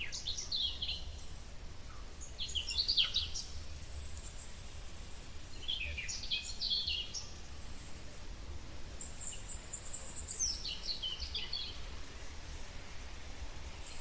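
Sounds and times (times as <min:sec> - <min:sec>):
birdsong chirping: 0:00.0 - 0:04.6, 0:05.4 - 0:08.1, 0:08.9 - 0:12.6.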